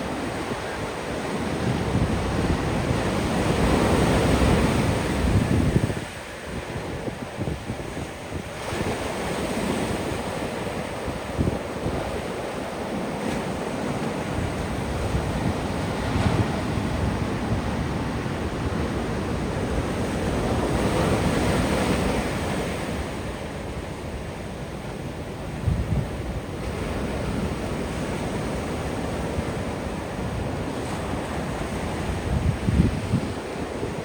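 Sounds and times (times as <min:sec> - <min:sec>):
waves breaking on a beach: 0:00.0 - 0:34.0
wind rumble on microphone: 0:00.0 - 0:34.0.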